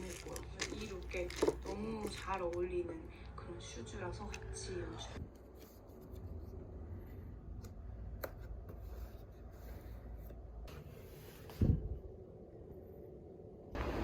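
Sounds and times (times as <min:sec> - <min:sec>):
faint rustling handling sounds: 0:00.0 - 0:02.9.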